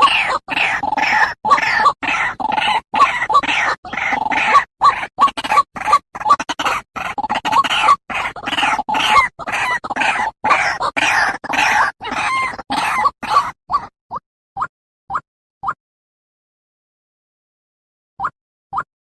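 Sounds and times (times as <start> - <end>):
birds giving harsh croaking calls: 0.0 - 13.9.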